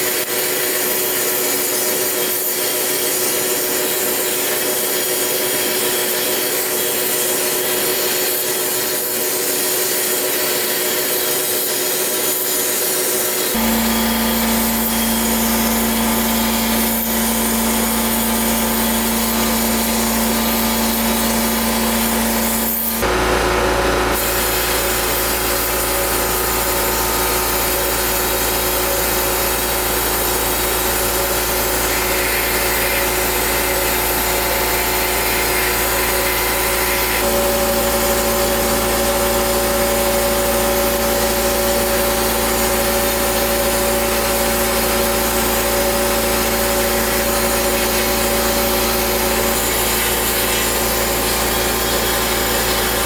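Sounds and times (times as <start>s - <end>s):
wire wheel scrubbing metal: 13.5s - 23.1s, 24.1s - 53.0s.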